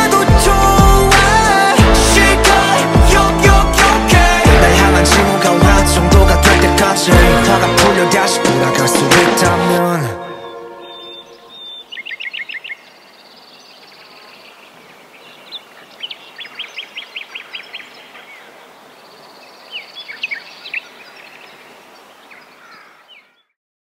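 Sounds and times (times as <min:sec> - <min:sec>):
small birds chirping: 0:10.0 - 0:23.5
steady outdoor hiss: 0:10.3 - 0:23.3.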